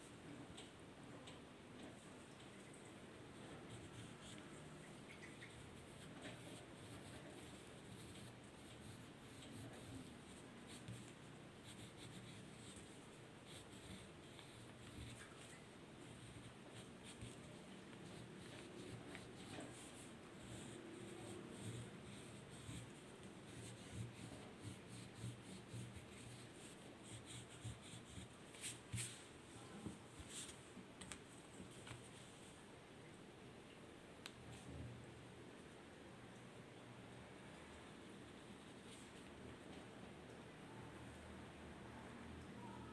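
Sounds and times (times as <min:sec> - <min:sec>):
drawing tool scratching on paper: 0:16.0 - 0:29.1.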